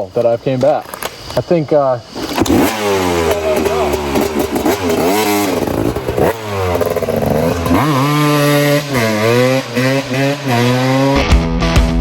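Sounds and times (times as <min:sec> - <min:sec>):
dirt bike engine revving: 0:02.1 - 0:11.4.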